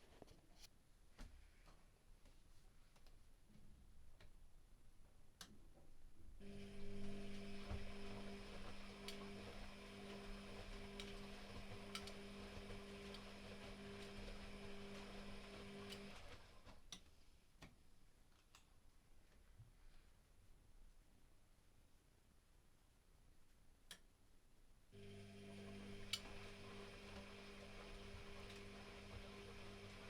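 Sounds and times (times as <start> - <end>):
washing machine motor humming: 6.4 - 16.8, 25.0 - 30.0.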